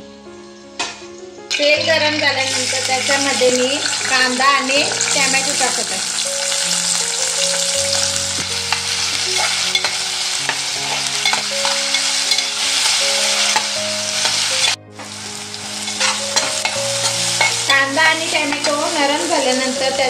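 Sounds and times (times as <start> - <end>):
vegetables sizzling in hot oil: 0.3 - 20.0
spatula scraping a pan: 8.6 - 14.8, 15.8 - 18.8.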